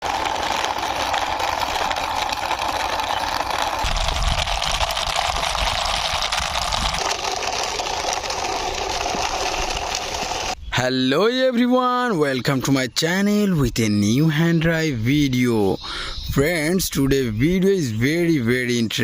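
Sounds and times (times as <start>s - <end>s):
plastic toy wheels rattling: 0.0s - 10.6s.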